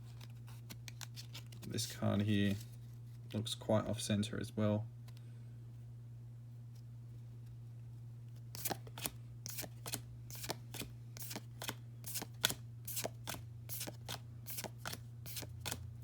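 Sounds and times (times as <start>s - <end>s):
steady low hum: 0.0s - 16.0s
cards snapping and sliding: 8.5s - 15.9s.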